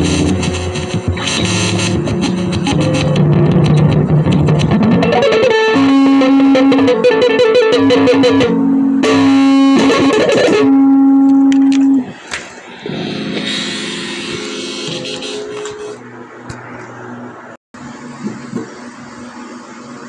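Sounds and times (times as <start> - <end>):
guitar music with long notes: 0.0 - 16.0.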